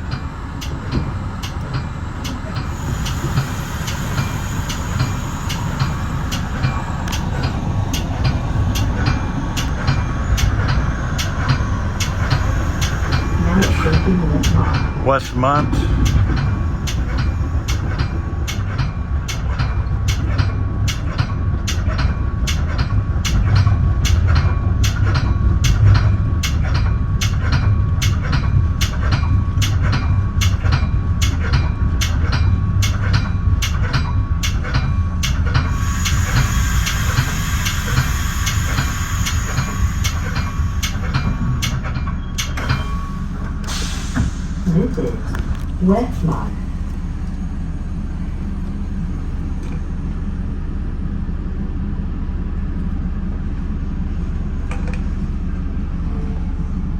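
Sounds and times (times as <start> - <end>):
train rumbling: 0.0 - 56.9
high brake squeal: 35.7 - 44.6.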